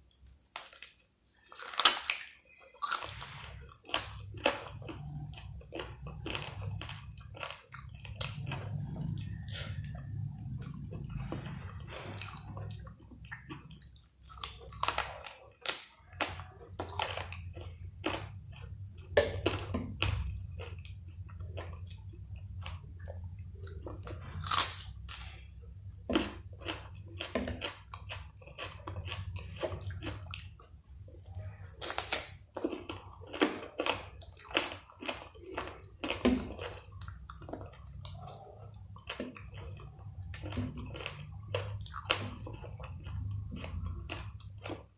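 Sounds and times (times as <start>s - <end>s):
chewing and biting food: 0.0s - 44.9s
steady low hum: 3.6s - 15.0s.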